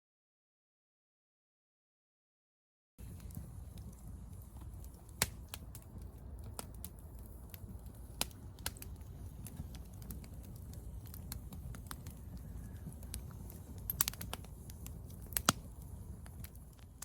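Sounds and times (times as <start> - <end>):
wood fire crackling: 3.0 - 17.0.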